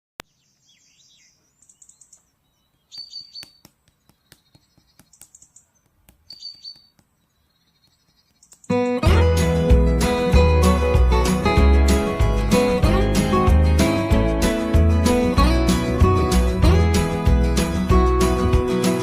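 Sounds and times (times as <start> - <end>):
short high chirps: 6.3 - 6.9.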